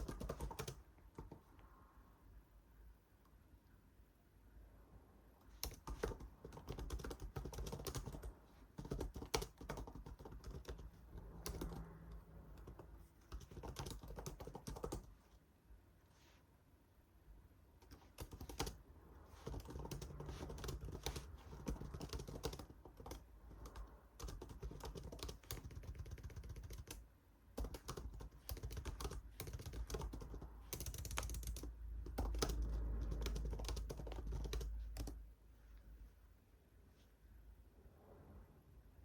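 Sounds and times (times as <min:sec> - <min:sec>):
computer keyboard typing: 0:00.0 - 0:01.5, 0:05.5 - 0:15.2, 0:17.8 - 0:35.2.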